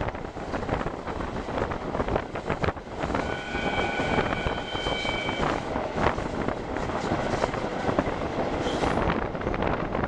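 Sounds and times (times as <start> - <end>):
train running noise: 0.0 - 10.0
wind rushing over microphone: 0.0 - 10.0
steady high tone: 3.2 - 5.6.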